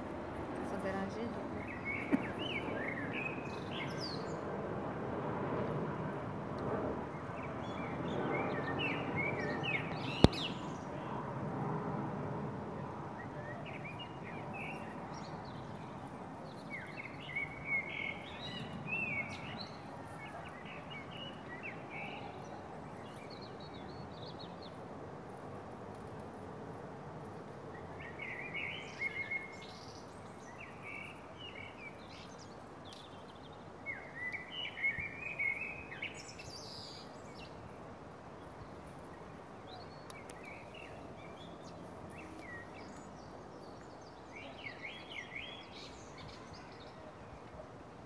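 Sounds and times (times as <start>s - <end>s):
outdoor background noise: 0.0s - 48.0s
birds twittering: 0.7s - 4.4s, 7.1s - 11.2s, 27.8s - 37.6s
sharp click: 9.9s - 10.6s.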